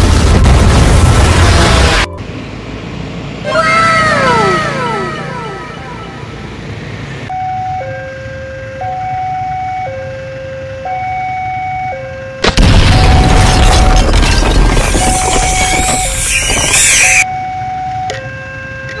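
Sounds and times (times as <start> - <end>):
loud noise: 3.4 - 7.2, 12.4 - 17.2
two-tone siren: 3.5 - 14.0, 14.8 - 19.0
loud boom: 12.4 - 16.0.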